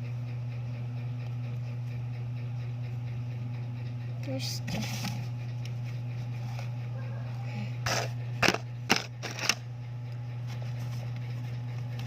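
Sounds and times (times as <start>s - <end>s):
steady low hum: 0.0s - 12.0s
objects being rummaged: 7.9s - 9.6s.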